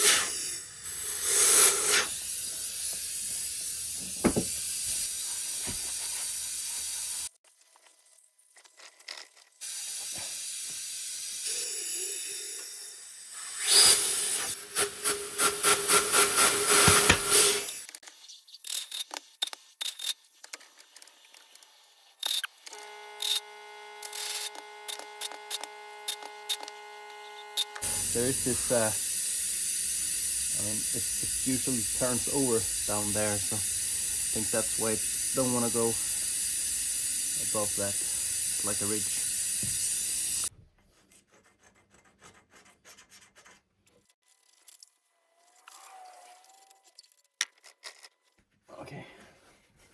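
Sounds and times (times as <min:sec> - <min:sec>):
loud hiss: 0:00.0 - 0:02.3, 0:27.8 - 0:40.5.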